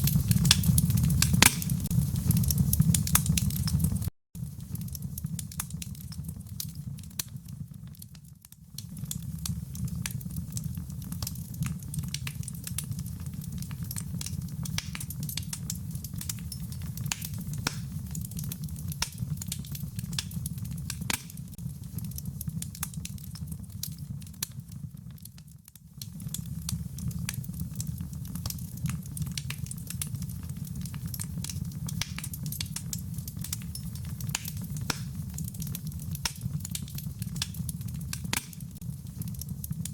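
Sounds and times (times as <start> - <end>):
rain patter: 0.0 - 39.9
wood fire crackling: 0.0 - 39.9.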